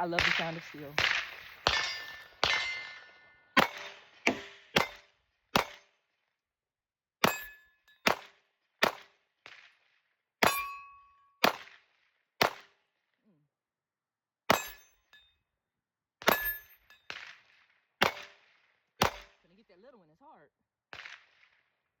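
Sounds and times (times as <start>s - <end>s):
pistol shots: 0.1s - 3.0s, 3.6s - 5.0s, 5.6s - 5.8s, 7.2s - 9.6s, 11.4s - 11.8s, 12.4s - 12.7s, 18.0s - 19.4s, 20.9s - 21.5s
steel plates ringing: 1.7s - 3.2s, 10.4s - 10.9s.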